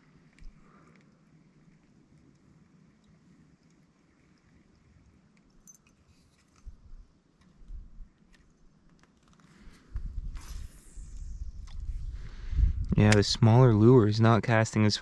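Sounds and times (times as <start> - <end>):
fishing line cast swish: 9.7 - 12.2.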